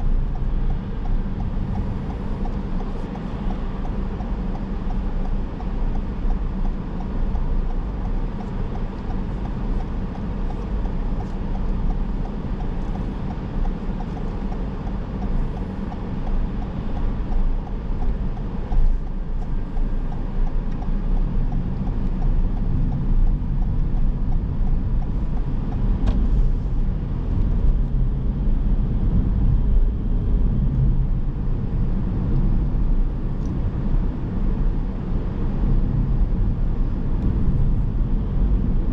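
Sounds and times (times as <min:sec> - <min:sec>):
light regular ticking: 0:00.0 - 0:26.0
car driving: 0:00.0 - 0:38.9.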